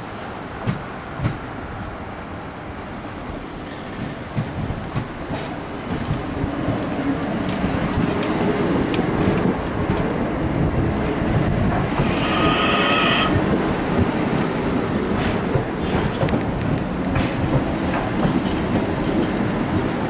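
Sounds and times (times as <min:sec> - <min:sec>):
train wheels rumbling on rail: 0:00.1 - 0:20.0
high wheel squeal: 0:12.0 - 0:13.4.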